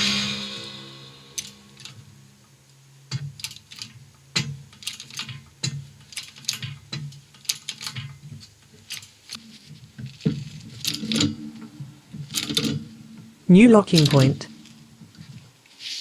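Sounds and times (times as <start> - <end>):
hydraulic press lever clicking: 1.4 - 2.1, 3.1 - 9.4, 10.2 - 13.3, 13.9 - 15.3.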